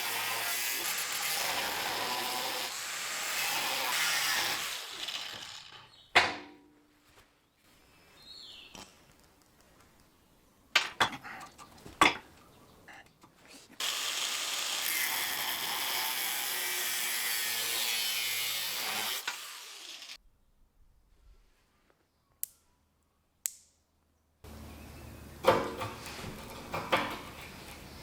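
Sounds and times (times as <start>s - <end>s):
power tool running: 0.0s - 5.9s, 13.8s - 20.2s.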